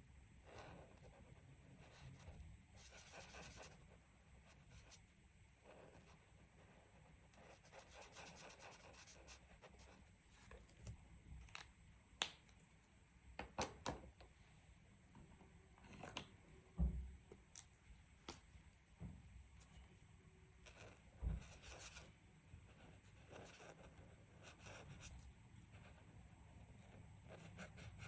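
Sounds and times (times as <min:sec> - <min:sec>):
coloring scratching on paper: 0:00.4 - 0:05.0, 0:05.6 - 0:10.1, 0:20.6 - 0:28.0
soft thump: 0:16.8 - 0:17.2.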